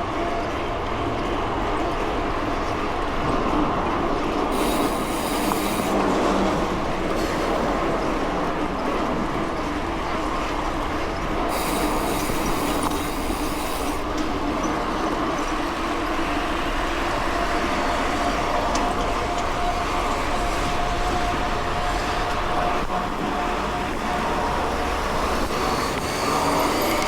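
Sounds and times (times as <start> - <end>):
bright hissing: 4.5 - 6.0, 11.5 - 14.1.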